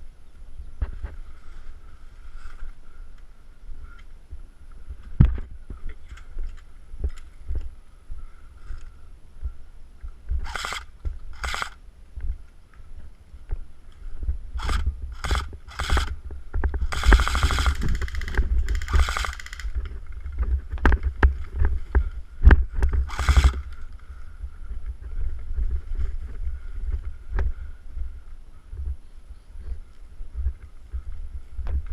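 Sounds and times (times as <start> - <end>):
wind noise: 0.0 - 31.9
handling rumble: 3.7 - 31.9
airsoft rifles firing bursts: 10.4 - 11.8, 14.6 - 16.2, 16.8 - 19.8, 23.0 - 23.8.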